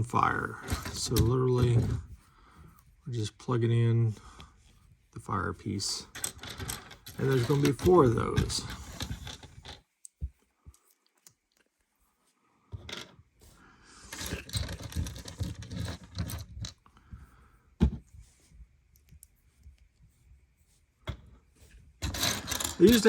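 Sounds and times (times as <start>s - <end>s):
plastic pieces rummaging: 6.2s - 9.8s, 14.1s - 16.7s, 22.0s - 23.0s.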